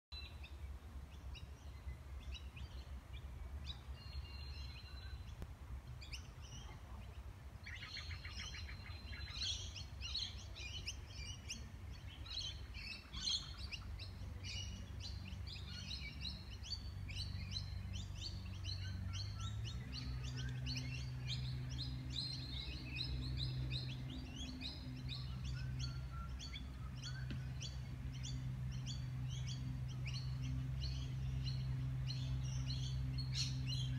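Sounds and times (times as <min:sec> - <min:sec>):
birds chirping and singing: 0:00.2 - 0:05.4, 0:06.0 - 0:33.9
low steady hum: 0:00.2 - 0:33.9
bird trill: 0:07.7 - 0:33.9.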